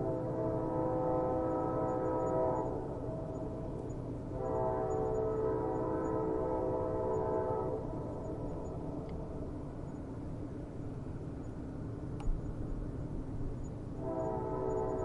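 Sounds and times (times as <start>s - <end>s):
train horn blasts: 0.0s - 3.7s, 4.3s - 8.1s, 14.0s - 15.0s
train rumbling: 0.0s - 15.0s.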